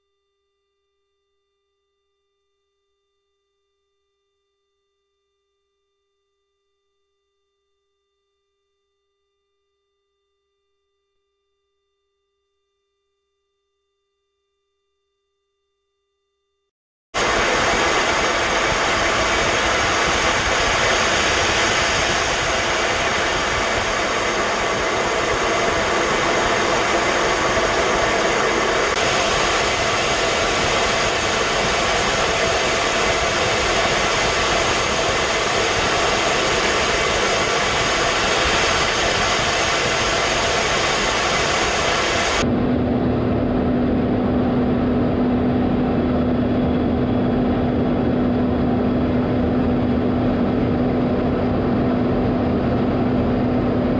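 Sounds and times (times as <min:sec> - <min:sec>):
jet engine rushing: 0:17.2 - 0:53.9
low hum: 0:17.2 - 0:53.9.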